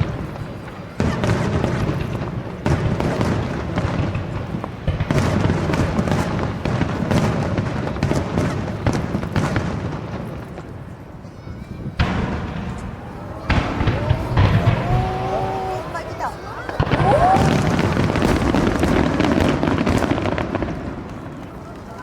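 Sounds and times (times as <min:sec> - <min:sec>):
fireworks booming: 0:00.0 - 0:10.9, 0:11.8 - 0:21.9
fireworks crackling: 0:00.0 - 0:11.2, 0:11.8 - 0:22.0.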